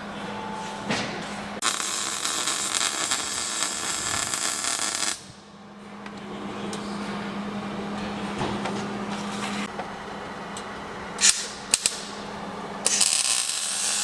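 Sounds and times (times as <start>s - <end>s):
welder arc crackling: 1.6s - 5.4s, 12.8s - 14.0s.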